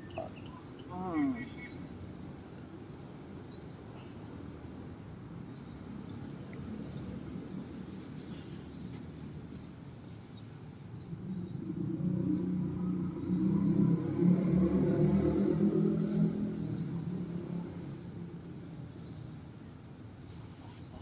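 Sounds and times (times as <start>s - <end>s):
birds chirping: 0.0s - 2.1s.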